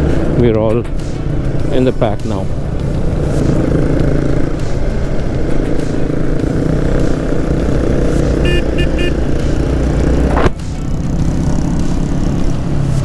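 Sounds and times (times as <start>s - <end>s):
motorcycle engine: 0.0s - 13.0s
short horn beeps: 8.4s - 9.2s.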